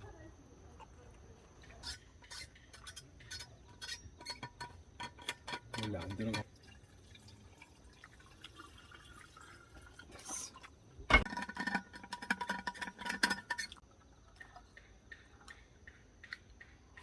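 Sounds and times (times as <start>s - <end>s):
tableware clinking: 11.1s - 11.8s.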